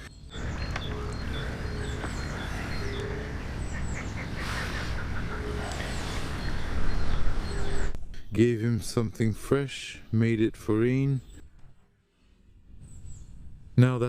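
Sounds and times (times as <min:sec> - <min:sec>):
wild birds chirping: 0:00.0 - 0:14.0.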